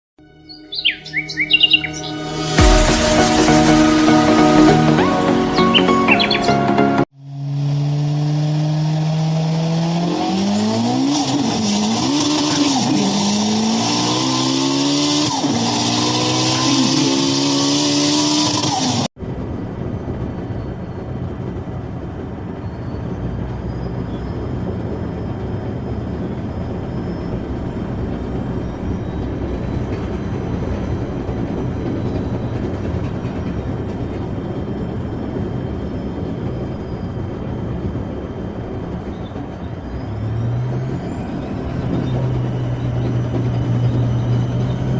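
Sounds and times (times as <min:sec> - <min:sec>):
car engine revving: 0:00.8 - 0:19.1
steady rushing noise: 0:01.4 - 0:06.2.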